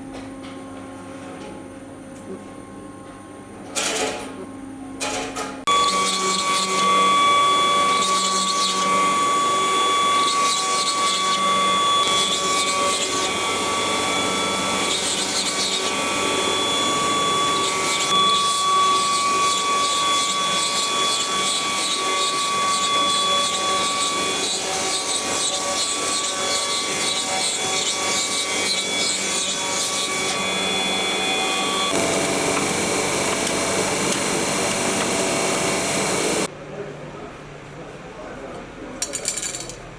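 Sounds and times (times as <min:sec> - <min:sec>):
bit cutting wood: 0:05.7 - 0:36.5
router spindle whine: 0:05.7 - 0:36.5.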